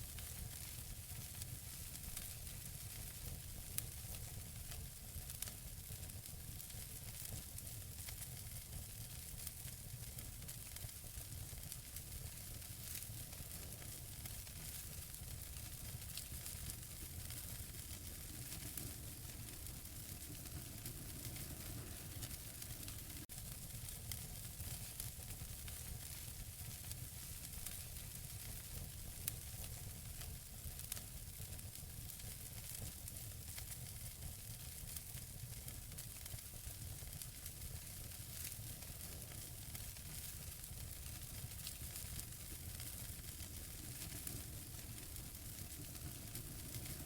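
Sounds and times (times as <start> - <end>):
wood fire crackling: 0.1 - 47.0
fire pops: 13.6 - 25.2, 37.2 - 47.0.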